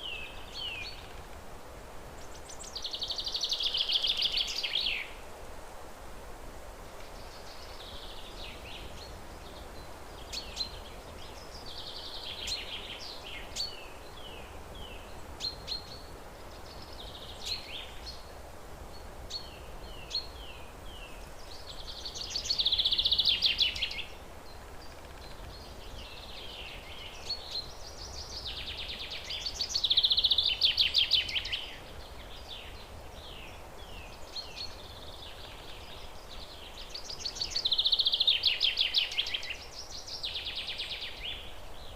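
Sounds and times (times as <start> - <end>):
songbirds singing: 0.0 - 5.3, 6.9 - 41.9
low background hiss: 0.0 - 41.9.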